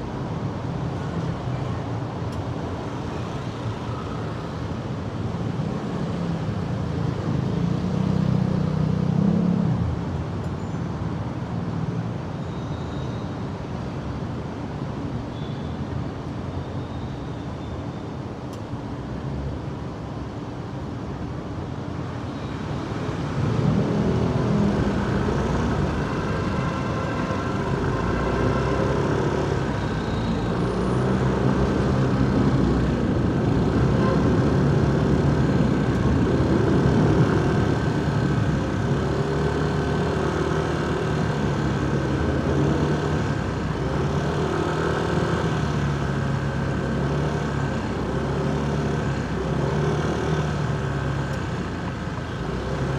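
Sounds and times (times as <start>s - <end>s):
road traffic: 0.0s - 52.9s
motorcycle engine revving: 23.6s - 52.9s.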